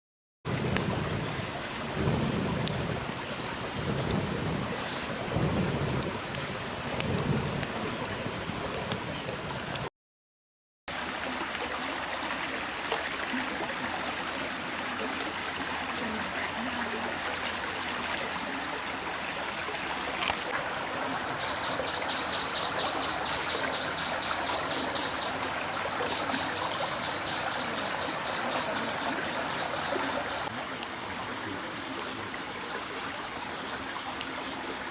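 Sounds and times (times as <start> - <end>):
heavy rain falling: 0.5 - 9.9, 12.6 - 34.9.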